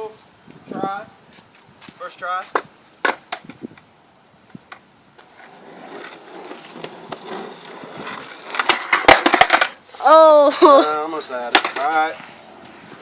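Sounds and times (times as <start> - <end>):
skateboard wheels rolling on pavement: 0.0 - 13.0
skateboard clacking: 2.5 - 3.6, 4.6 - 9.8, 11.4 - 12.7.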